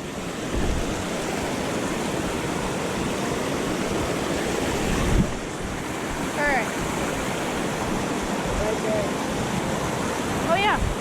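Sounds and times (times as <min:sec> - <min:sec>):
creek water rushing over rocks: 0:00.0 - 0:11.0.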